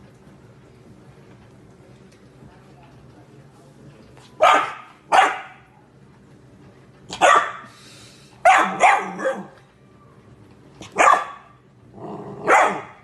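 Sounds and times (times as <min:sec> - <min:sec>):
dog barking: 0:04.4 - 0:05.6, 0:07.2 - 0:07.7, 0:08.4 - 0:09.6, 0:10.8 - 0:11.6, 0:12.4 - 0:13.0.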